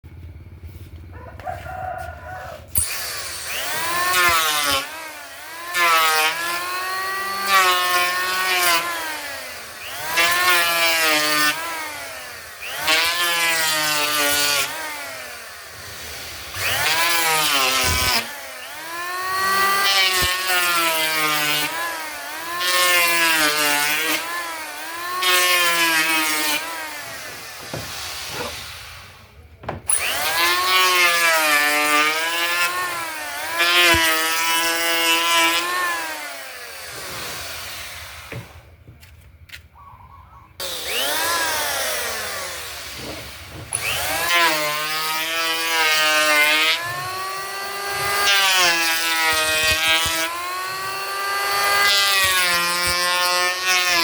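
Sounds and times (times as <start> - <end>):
power tool motor on wood: 0.2 - 39.7, 40.6 - 54.0
hissy cutting noise: 26.4 - 29.3.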